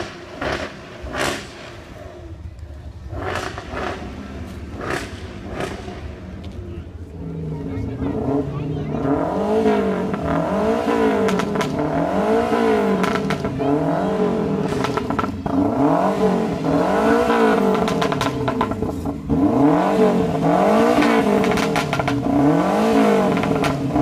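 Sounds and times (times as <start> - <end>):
car engines revving: 0.0 - 24.0
sharp exhaust pops: 11.2 - 12.0, 13.0 - 13.6, 14.6 - 15.6, 17.6 - 19.2, 20.9 - 22.4, 23.2 - 24.0.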